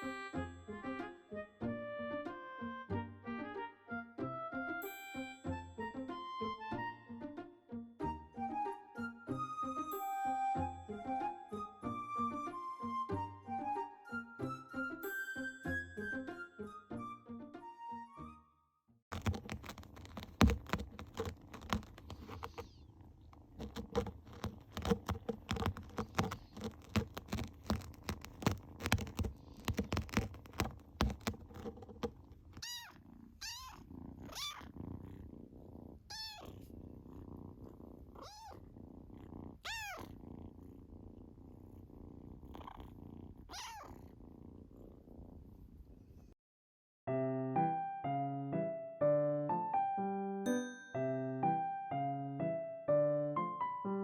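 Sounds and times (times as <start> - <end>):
rapid irregular clicks and knocks: 19.1 - 22.7, 23.4 - 32.6
kitten purring: 19.1 - 46.4
kitten mewing: 32.5 - 34.8, 36.1 - 36.7, 38.1 - 38.7, 39.6 - 40.2, 43.5 - 44.1.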